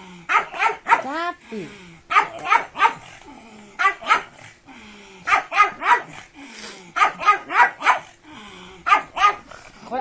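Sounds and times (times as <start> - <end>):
dog barking: 0.3 - 1.2, 2.1 - 3.1, 3.8 - 4.4, 5.3 - 6.2, 7.0 - 8.1, 8.8 - 9.5.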